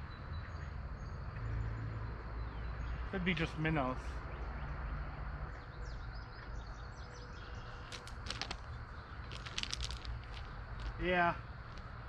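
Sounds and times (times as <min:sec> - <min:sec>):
birds chirping: 0:00.0 - 0:12.0
low outdoor rumble: 0:05.1 - 0:12.0.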